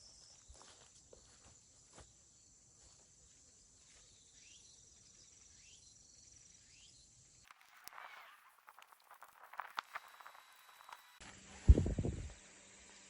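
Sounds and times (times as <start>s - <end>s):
insect trill: 1.2s - 11.2s
bird chirps: 3.9s - 8.5s.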